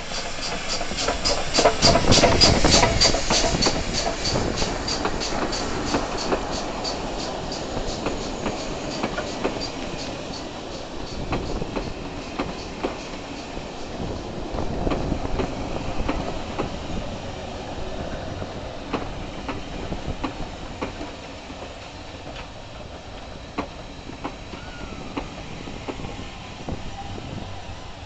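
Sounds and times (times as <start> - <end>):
train coaches rumbling: 0.0 - 28.0
wheels clicking over rail joints: 0.1 - 17.0.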